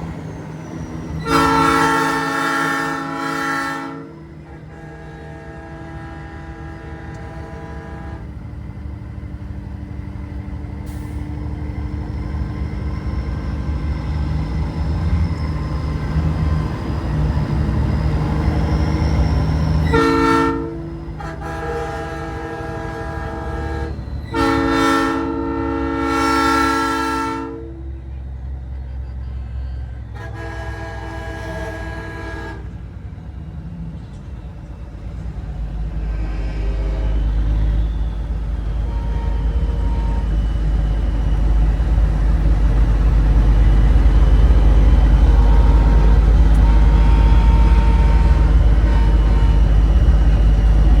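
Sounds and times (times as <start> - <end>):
truck engine rumbling: 0.0 - 51.0
train horn chord blasts: 1.2 - 8.3, 19.8 - 28.1, 30.1 - 32.7, 38.6 - 40.6, 45.1 - 50.0.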